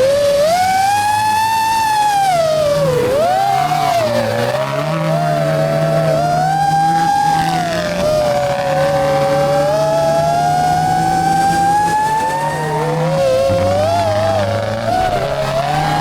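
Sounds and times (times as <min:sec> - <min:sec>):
rally car engine under load: 0:00.0 - 0:16.0.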